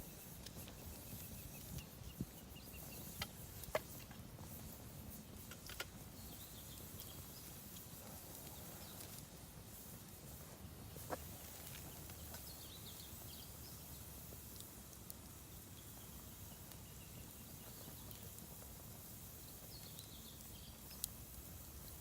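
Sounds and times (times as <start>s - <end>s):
fire crackle: 0.0s - 22.0s.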